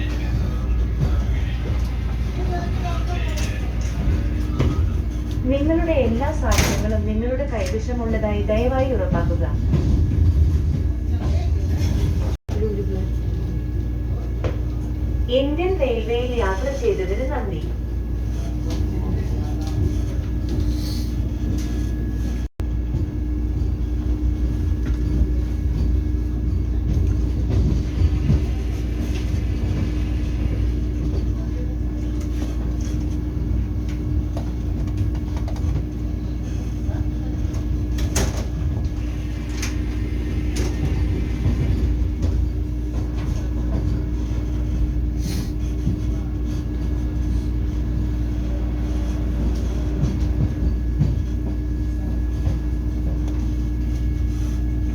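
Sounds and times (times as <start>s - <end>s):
train rumble inside coach: 0.0s - 54.9s.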